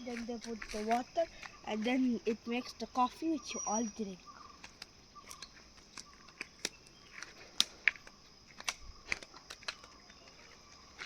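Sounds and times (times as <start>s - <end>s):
high-pitched insect drone: 0.0s - 6.5s
sharp clicks and snaps: 4.6s - 10.3s.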